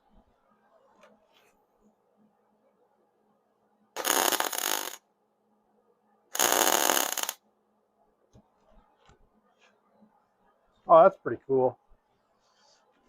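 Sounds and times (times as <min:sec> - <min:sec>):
welder arc crackling: 0:04.0 - 0:05.0, 0:06.4 - 0:07.4.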